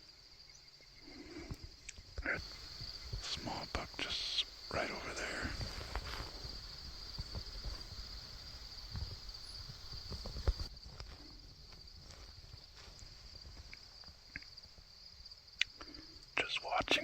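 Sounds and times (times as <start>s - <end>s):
crickets chirping: 0.0s - 17.0s
soft low rustling: 2.4s - 14.2s.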